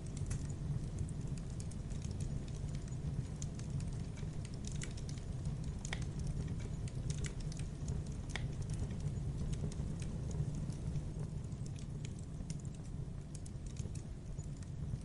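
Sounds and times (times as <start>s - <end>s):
sharp pops from fire: 0.0s - 15.0s
wood fire crackling: 0.0s - 15.0s.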